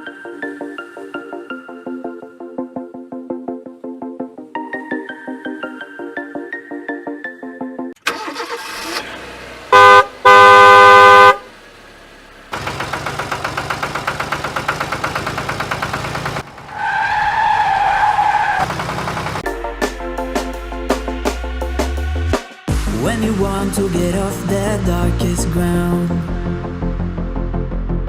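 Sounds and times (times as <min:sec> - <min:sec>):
background music: 0:00.0 - 0:08.8, 0:19.4 - 0:28.0
engine running: 0:08.0 - 0:17.3, 0:18.6 - 0:19.6
vehicle horn blasts: 0:09.7 - 0:11.5.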